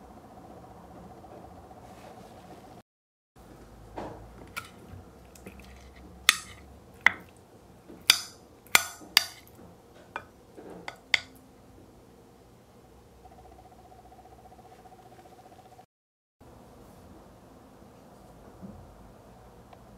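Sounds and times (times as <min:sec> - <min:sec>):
spoon scraping: 0:04.4 - 0:07.3, 0:08.0 - 0:09.5, 0:10.2 - 0:11.3
spoon clinking on ceramic plate: 0:05.4 - 0:07.3, 0:08.1 - 0:09.5, 0:10.9 - 0:11.3.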